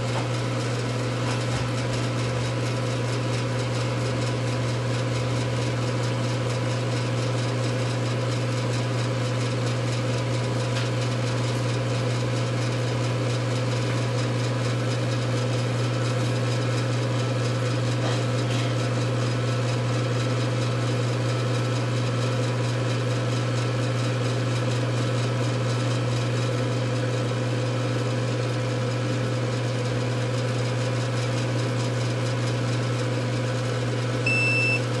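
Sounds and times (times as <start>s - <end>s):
electrical equipment humming: 33.9s - 35.0s
high electronic beep: 34.3s - 34.8s.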